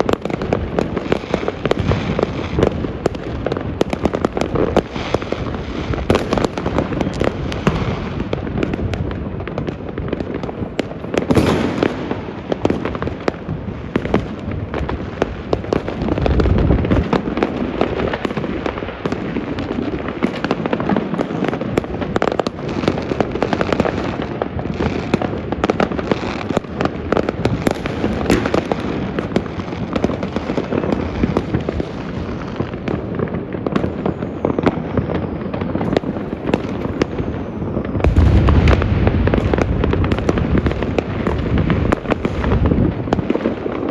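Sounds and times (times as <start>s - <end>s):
fireworks and firecrackers crackling: 0.0s - 43.9s
rumbling explosions: 37.9s - 43.4s.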